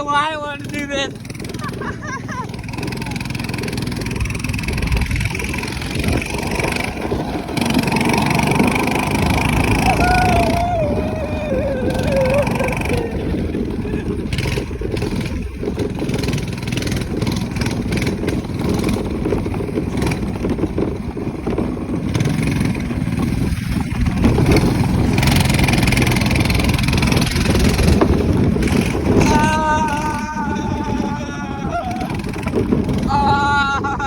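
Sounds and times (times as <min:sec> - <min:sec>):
small engine running: 0:00.0 - 0:34.0.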